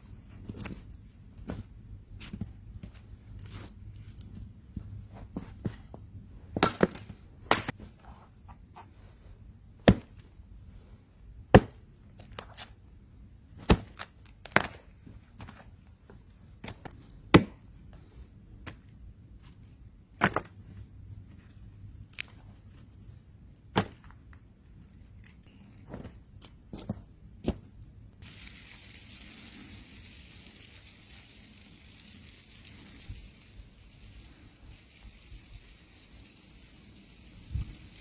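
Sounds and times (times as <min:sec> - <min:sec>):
wood being chopped: 0:06.6 - 0:07.7.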